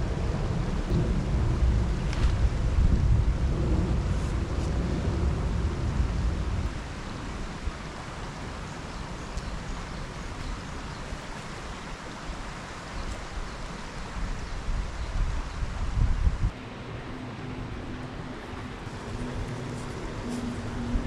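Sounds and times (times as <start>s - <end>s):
outdoor rushing noise: 0.0s - 8.2s, 16.4s - 21.0s
wind buffeting microphone: 0.0s - 21.0s.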